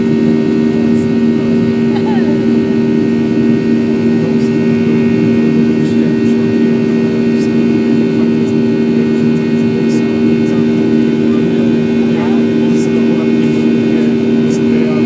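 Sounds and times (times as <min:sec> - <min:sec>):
jet engines droning in cabin: 0:00.0 - 0:15.0.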